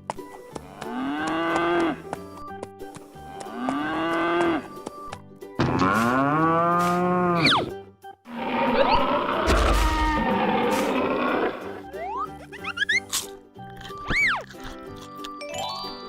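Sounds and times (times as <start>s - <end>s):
upbeat cartoon music: 0.0s - 16.0s
cow mooing: 0.8s - 2.0s, 3.4s - 4.7s, 5.6s - 7.5s, 8.3s - 11.8s.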